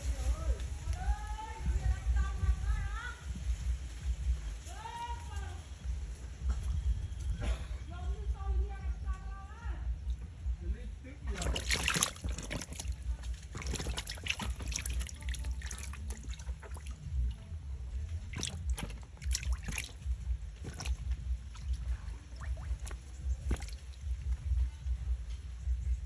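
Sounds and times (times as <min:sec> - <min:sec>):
steady low rumble: 0:00.0 - 0:26.0
water splashing and trickling: 0:11.2 - 0:25.7.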